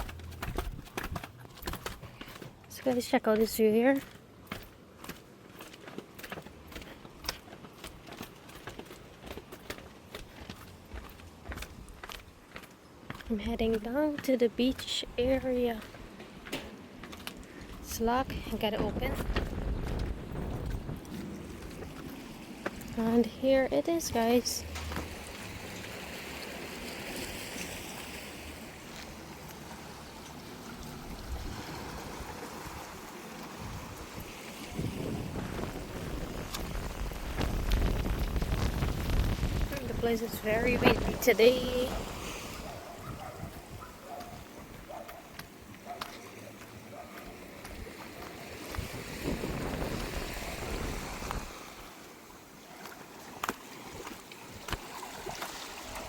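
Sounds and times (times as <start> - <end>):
wind rumbling on microphone: 0.0 - 1.4, 17.6 - 29.3, 30.5 - 45.2, 47.6 - 51.9
water washing at shore: 13.8 - 56.0
sea waves breaking on beach: 19.0 - 56.0.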